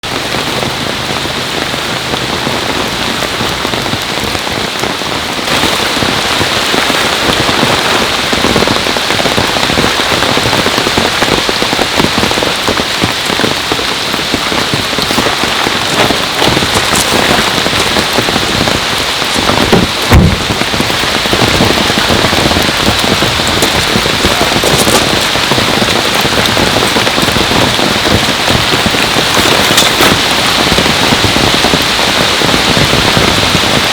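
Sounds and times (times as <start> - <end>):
heavy rain pouring: 0.0 - 33.9
dull thump: 19.5 - 20.7.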